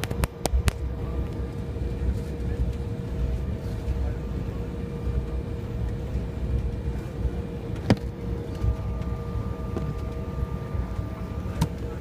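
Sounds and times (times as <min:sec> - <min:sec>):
airliner cabin rumble: 0:00.0 - 0:12.0
faint steady tones: 0:00.4 - 0:12.0.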